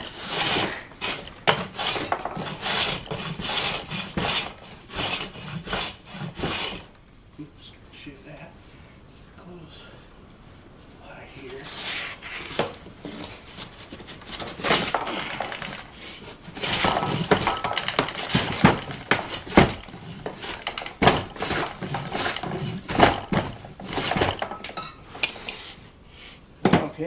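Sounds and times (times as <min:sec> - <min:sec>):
hand plane shaving wood: 0:00.0 - 0:06.9, 0:16.2 - 0:24.3.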